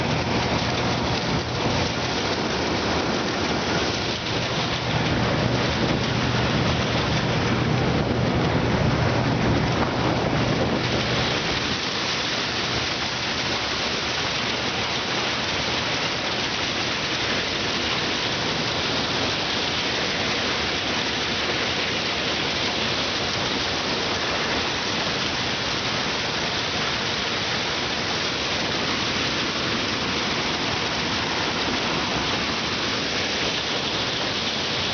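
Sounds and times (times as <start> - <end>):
combine harvester rushing noise: 0.0 - 34.9
low engine hum: 0.0 - 34.9.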